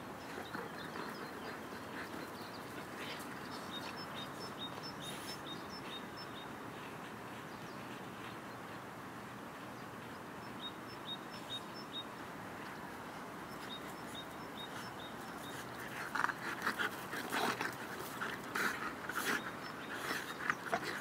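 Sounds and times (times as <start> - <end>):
outdoor background noise: 0.0 - 21.0
songbird chirping: 0.1 - 8.8, 9.8 - 21.0.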